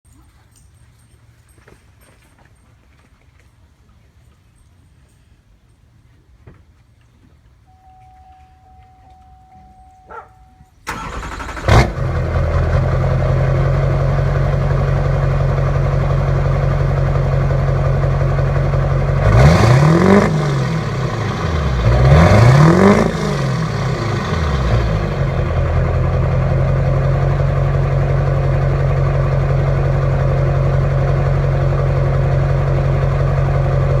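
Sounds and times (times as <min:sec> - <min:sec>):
diesel engine starting: 0:07.8 - 0:34.0
engine revving: 0:10.9 - 0:28.0
diesel engine idling loudly: 0:10.9 - 0:34.0.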